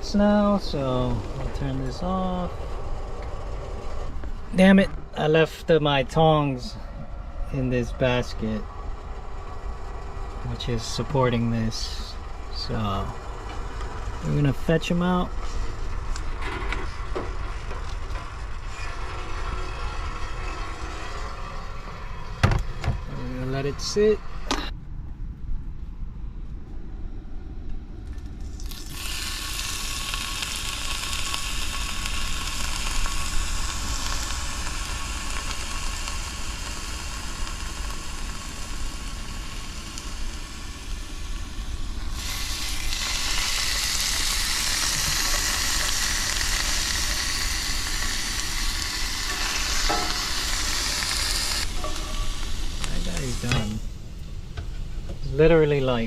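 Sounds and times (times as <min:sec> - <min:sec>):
beef sizzling in a pan: 0:28.6 - 0:53.8.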